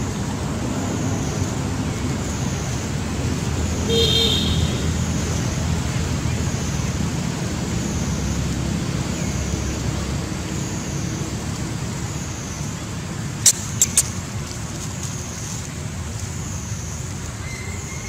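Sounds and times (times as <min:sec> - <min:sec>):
low rumbling background noise: 0:00.0 - 0:03.9
even hiss: 0:13.2 - 0:15.9.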